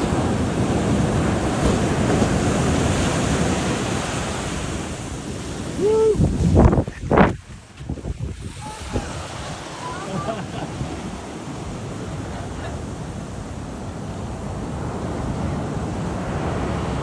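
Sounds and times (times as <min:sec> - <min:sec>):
heavy surf crashing: 0:00.0 - 0:17.0
wind buffeting microphone: 0:00.0 - 0:17.0.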